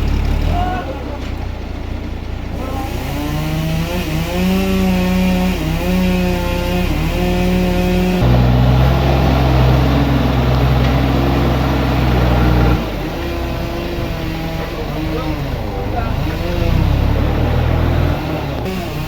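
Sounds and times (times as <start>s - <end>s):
sawmill machinery running: 0.0s - 19.0s.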